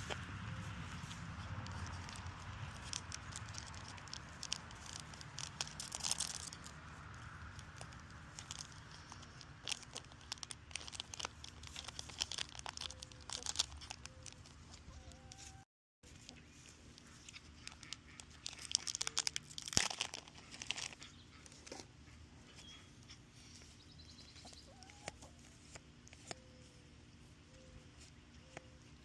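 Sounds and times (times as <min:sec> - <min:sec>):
foil pack tearing and crinkling: 0:01.4 - 0:14.6, 0:17.6 - 0:21.4.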